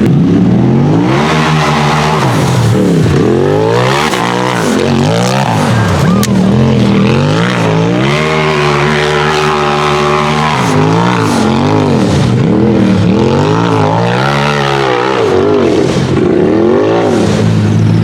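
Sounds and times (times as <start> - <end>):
buggy engine revving: 0.0 - 18.0.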